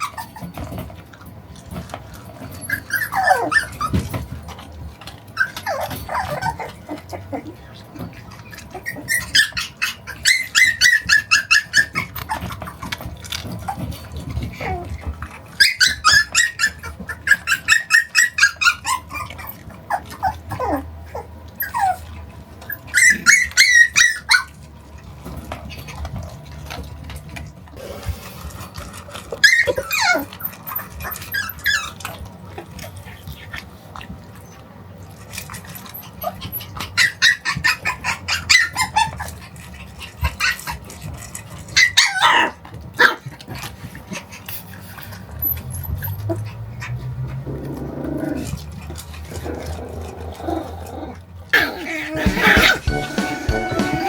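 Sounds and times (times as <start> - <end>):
puppy whining: 0.0 - 0.9, 2.3 - 4.5, 5.2 - 24.6, 29.1 - 33.2, 35.6 - 43.4, 49.2 - 54.0
puppy yapping: 2.6 - 4.0, 5.4 - 7.5, 8.6 - 12.8, 14.5 - 22.1, 22.7 - 24.5, 29.3 - 32.0, 41.7 - 43.3, 51.6 - 53.0.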